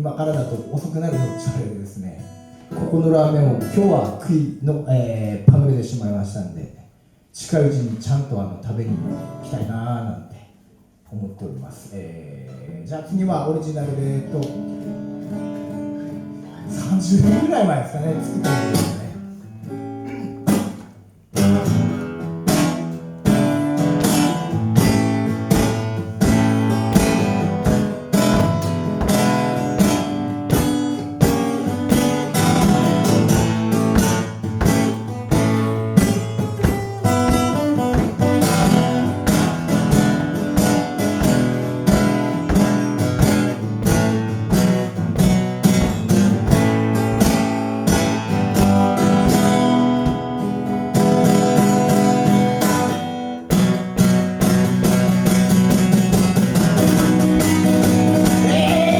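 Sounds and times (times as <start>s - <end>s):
acoustic guitar strummed: 14.2s - 58.9s.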